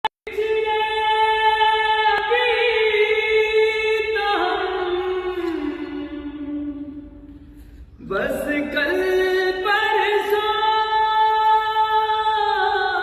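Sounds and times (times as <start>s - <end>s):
high voice singing unaccompanied: 0.2s - 7.2s.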